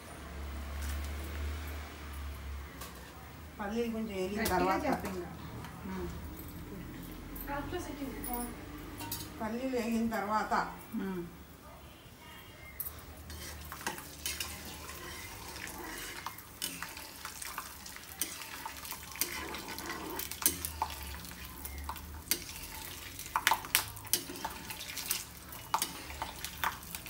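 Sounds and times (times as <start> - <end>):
peanuts sizzling in oil: 12.8 - 27.0
metal spatula scraping a wok: 13.1 - 27.0.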